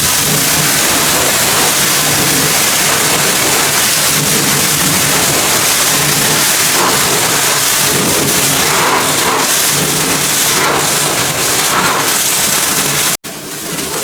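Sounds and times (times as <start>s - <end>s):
pressure washer spraying water: 0.0s - 14.0s.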